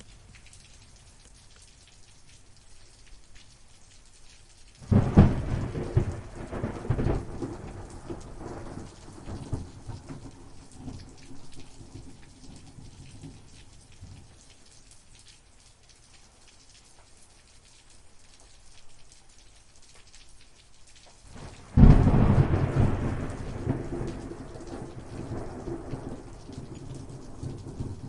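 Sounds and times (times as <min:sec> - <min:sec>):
steady rain: 0:00.0 - 0:28.0
thunderclap: 0:04.8 - 0:11.1, 0:21.3 - 0:28.0
rolling thunder rumble: 0:04.8 - 0:12.2, 0:21.3 - 0:28.0.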